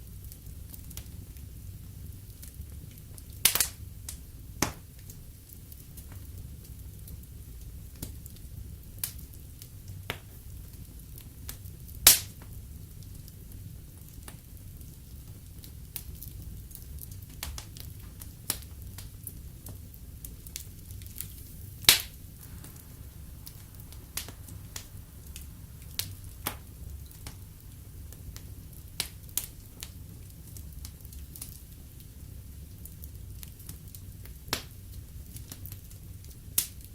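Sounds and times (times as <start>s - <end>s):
fire crackles and pops: 0.0s - 36.9s
low rumble of fire: 0.0s - 36.9s.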